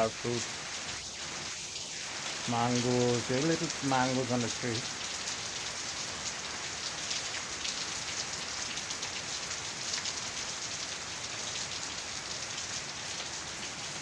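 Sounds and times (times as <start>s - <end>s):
heavy rain hiss: 0.0s - 14.0s.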